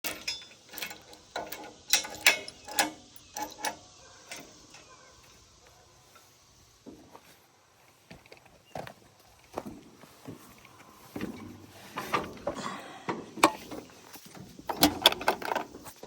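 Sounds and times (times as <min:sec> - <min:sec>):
sharp clicks and knocks: 0:00.0 - 0:04.9, 0:11.2 - 0:16.0.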